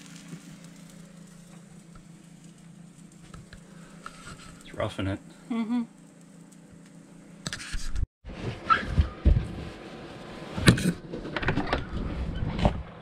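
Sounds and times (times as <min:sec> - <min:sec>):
faint steady hum: 0:00.0 - 0:07.8.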